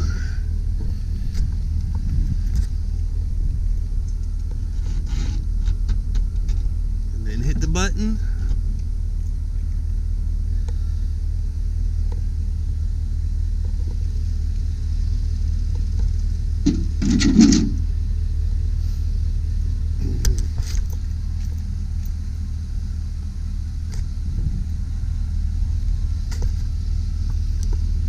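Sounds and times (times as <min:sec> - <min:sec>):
truck liftgate motor rumbling: 0:15.7 - 0:17.9
liftgate clunk: 0:16.6 - 0:17.8.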